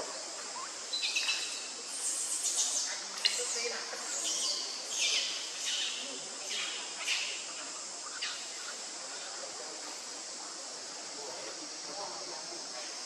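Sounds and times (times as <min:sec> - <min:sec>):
forest insects droning: 0:00.0 - 0:13.0.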